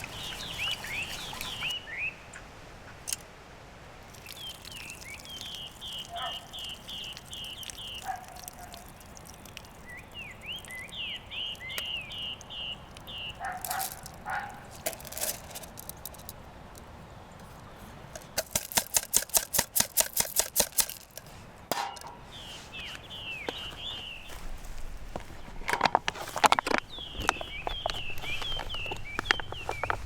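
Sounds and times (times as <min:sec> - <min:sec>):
small bird chirping: 0:00.0 - 0:02.2, 0:04.1 - 0:14.8, 0:22.2 - 0:24.6, 0:26.7 - 0:30.0.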